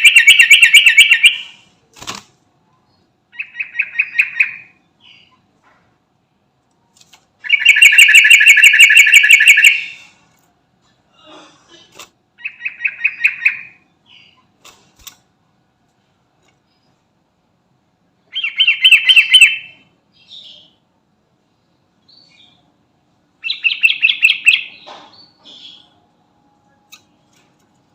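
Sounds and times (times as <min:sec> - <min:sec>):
bird singing fast repeated notes: 0:00.0 - 0:01.6, 0:03.3 - 0:05.3, 0:07.4 - 0:10.0, 0:12.4 - 0:14.4, 0:18.3 - 0:19.8, 0:23.4 - 0:24.8.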